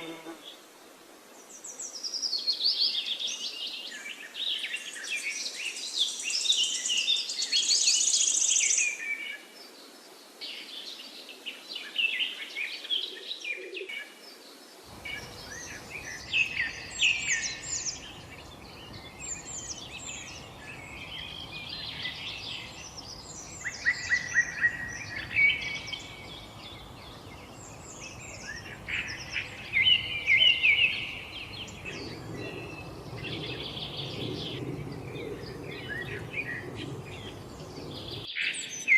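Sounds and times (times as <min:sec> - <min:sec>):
low steady background noise: 0:13.9 - 0:38.3
songbirds chirping and singing: 0:14.9 - 0:38.9.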